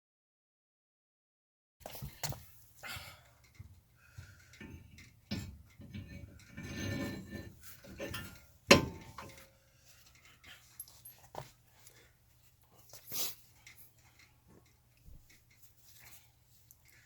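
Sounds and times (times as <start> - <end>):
metal scraping: 4.4 - 11.1
metal tools clinking and knocking: 4.4 - 11.5
sharp metal clank: 8.0 - 9.4.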